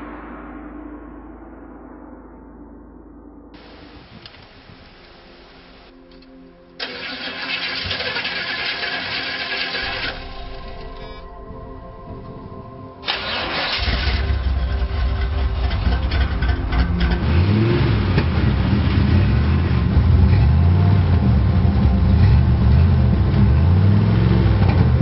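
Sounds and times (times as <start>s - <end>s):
car engine starting and revving: 3.6s - 6.0s, 6.8s - 11.3s, 13.0s - 25.0s.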